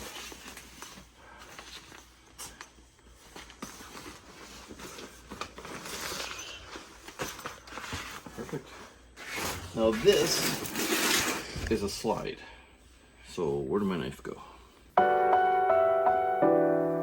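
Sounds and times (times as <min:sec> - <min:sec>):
fabric rustling: 0:00.0 - 0:12.2.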